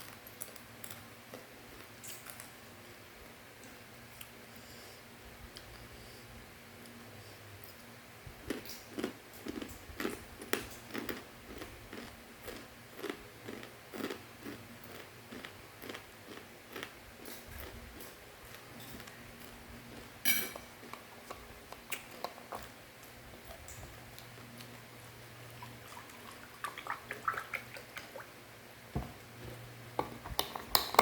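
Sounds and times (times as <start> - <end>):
crunchy snack being chewed: 8.5 - 20.2.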